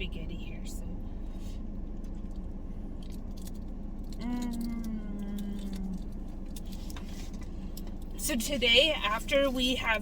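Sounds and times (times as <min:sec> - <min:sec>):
car and air conditioning humming: 0:00.0 - 0:10.0.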